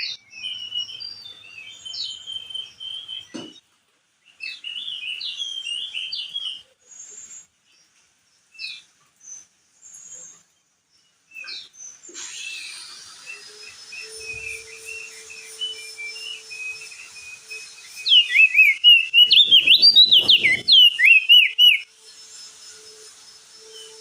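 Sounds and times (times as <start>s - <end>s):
bird chirping: 0.0s - 24.0s
steady hiss: 6.8s - 24.0s.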